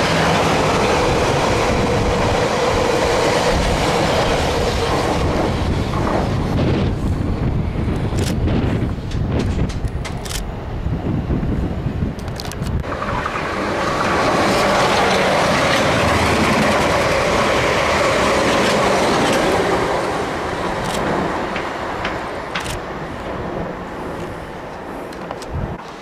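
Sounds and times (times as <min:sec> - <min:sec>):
train passing at speed: 0:00.0 - 0:26.0
sharp clicks: 0:09.1 - 0:10.5.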